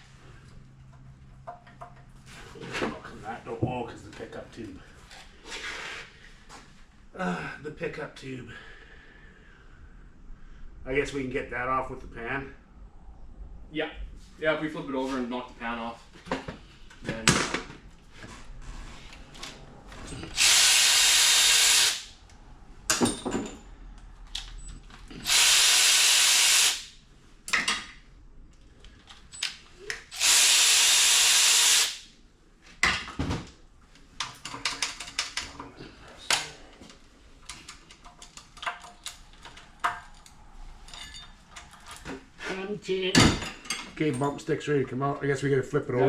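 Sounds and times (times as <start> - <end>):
power wrench spinning: 20.2 - 22.2, 25.1 - 27.0, 30.0 - 32.1
metal parts clinking: 37.5 - 42.0.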